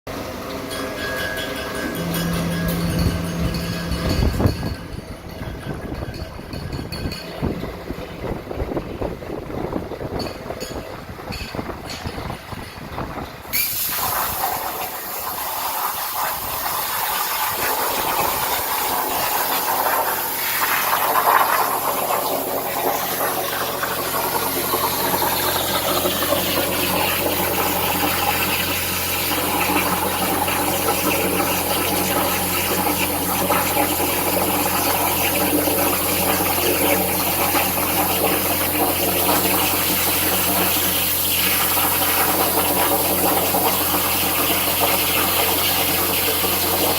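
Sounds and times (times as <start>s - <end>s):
electrical hum: 0.1s - 46.9s
plasma cutting torch hissing: 13.5s - 46.9s.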